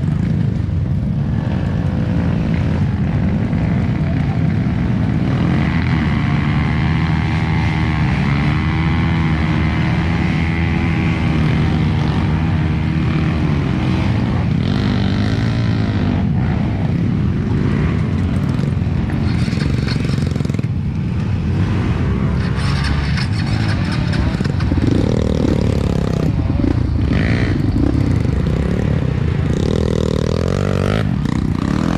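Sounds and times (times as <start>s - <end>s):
dirt bike engine revving: 1.4s - 31.9s.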